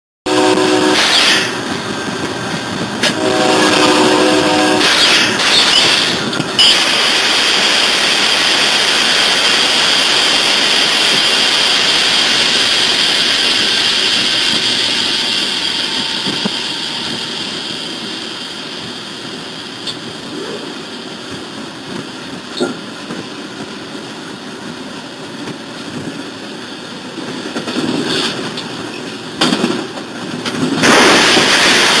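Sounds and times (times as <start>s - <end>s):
diesel locomotive rumble with hiss: 0.3s - 32.0s
sudden loud noise bursts: 30.8s - 32.0s.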